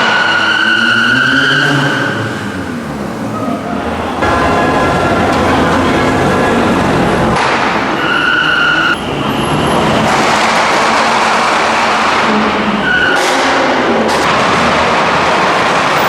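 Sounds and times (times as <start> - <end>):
car engines running loudly: 0.0 - 16.0.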